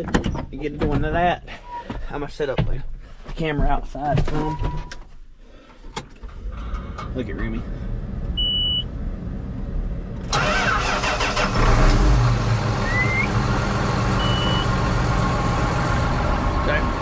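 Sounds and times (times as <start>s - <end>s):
tractor engine starting and running: 6.2s - 17.0s.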